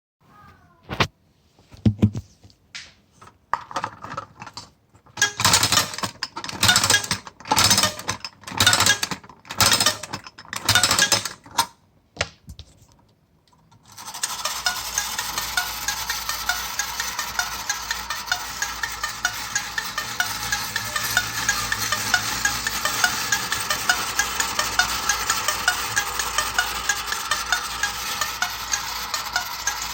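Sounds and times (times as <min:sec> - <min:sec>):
spring motor whirring and ticking: 0:05.2 - 0:11.4, 0:13.9 - 0:29.9.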